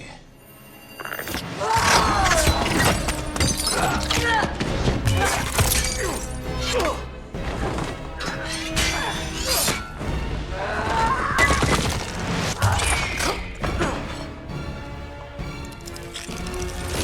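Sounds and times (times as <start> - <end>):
dramatic orchestral score: 0.0 - 17.0
glass shattering and crashing: 5.1 - 6.4.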